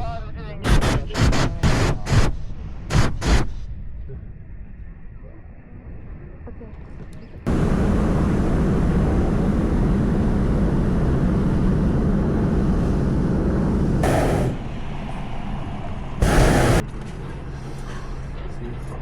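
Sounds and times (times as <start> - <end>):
sharp hiss: 7.5 - 14.7, 16.2 - 16.8
propane burner blast: 7.5 - 16.9.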